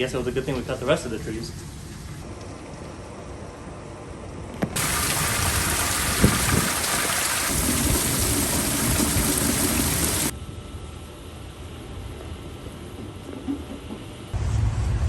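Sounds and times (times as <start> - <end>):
heavy rain pouring: 4.8 - 10.3.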